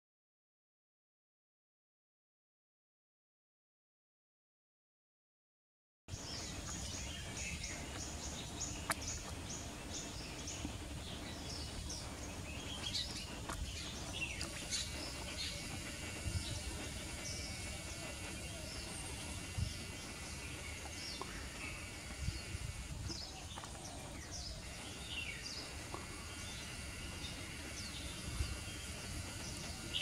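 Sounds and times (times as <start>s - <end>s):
birds chirping: 6.1s - 30.0s
low outdoor rumble: 6.1s - 30.0s.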